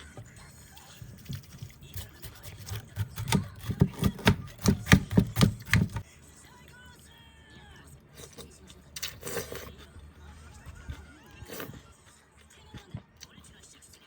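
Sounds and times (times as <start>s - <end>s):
knife chopping on cutting board: 1.9s - 6.0s.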